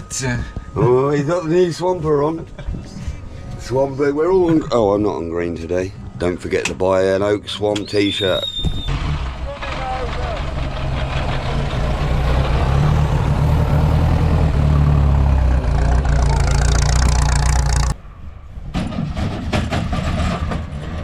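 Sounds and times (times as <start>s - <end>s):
old car engine running: 8.9s - 18.0s.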